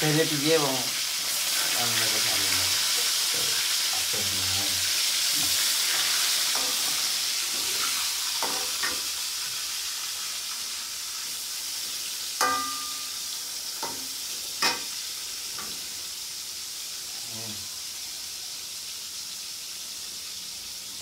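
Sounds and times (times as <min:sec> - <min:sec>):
food sizzling in a pan: 0:00.0 - 0:21.0
metal utensil clinking on pan: 0:07.7 - 0:09.0, 0:12.4 - 0:13.2, 0:13.8 - 0:14.9.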